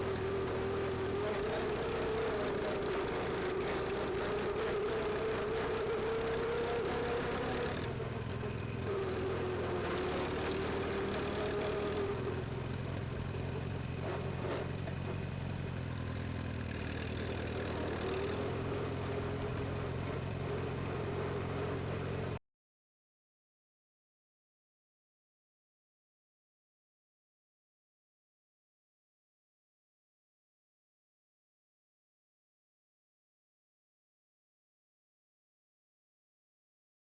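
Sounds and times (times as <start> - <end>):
tractor engine running: 0.0 - 22.4.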